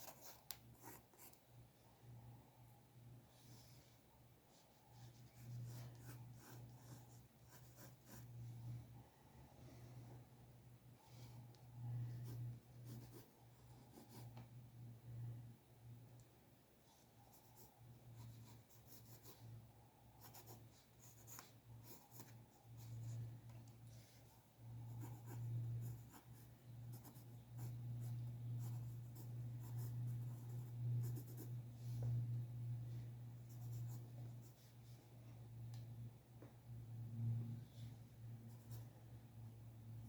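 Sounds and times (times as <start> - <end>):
pencil scratching on paper: 0.0 - 1.4, 4.5 - 8.5, 12.1 - 14.4, 17.0 - 19.6, 20.2 - 23.3, 23.9 - 32.1
steady low hum: 0.0 - 40.0.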